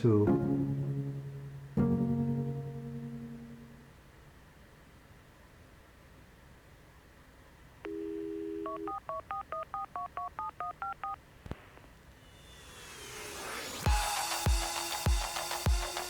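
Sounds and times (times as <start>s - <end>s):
telephone dial tone: 7.8s - 11.2s
touch-tone keypad beeps: 7.9s - 11.2s
hiss: 12.2s - 16.0s.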